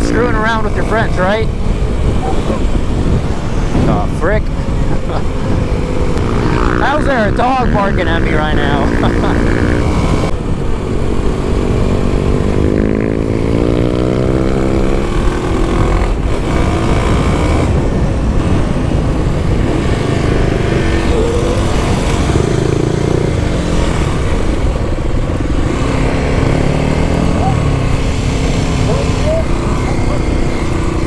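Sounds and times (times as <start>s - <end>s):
motorcycle engine accelerating: 0.0s - 31.0s
wind noise on microphone: 0.0s - 31.0s.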